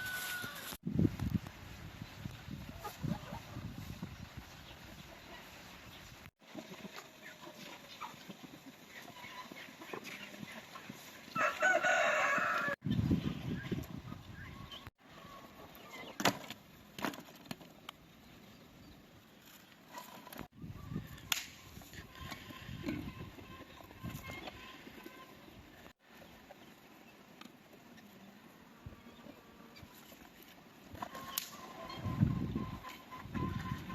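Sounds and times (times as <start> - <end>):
rooster crowing: 0.0 - 0.8, 11.4 - 12.8.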